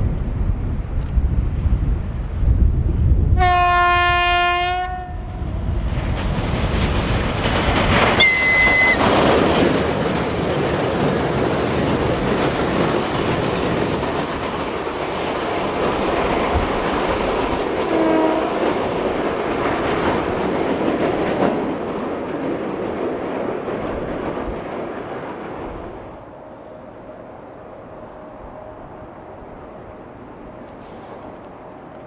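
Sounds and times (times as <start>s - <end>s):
high-pitched train whistle: 3.4s - 5.3s, 8.2s - 9.2s, 17.9s - 18.5s
train wheels clattering: 5.4s - 26.0s.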